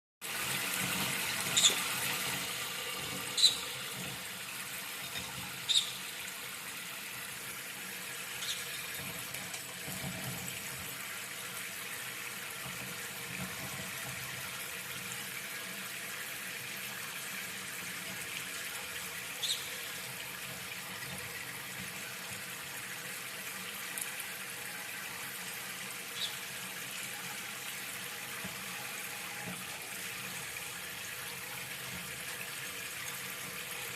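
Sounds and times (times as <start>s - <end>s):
running water from a tap: 0.2s - 33.9s
parrot squawks: 1.5s - 1.9s, 3.4s - 3.8s, 5.6s - 6.0s, 19.4s - 19.7s.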